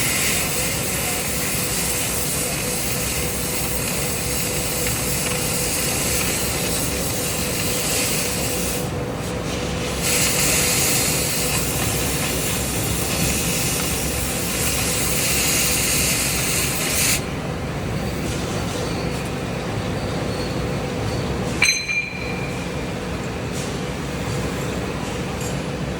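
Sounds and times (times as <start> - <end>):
cutting torch hissing: 0.0 - 17.2.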